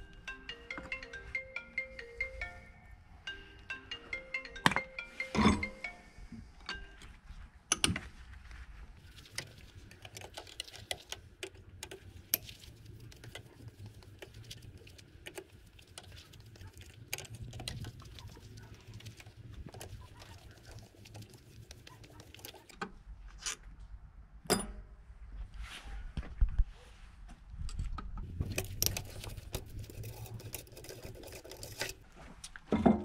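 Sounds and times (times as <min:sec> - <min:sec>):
metal engine parts clinking: 0:05.3 - 0:05.8.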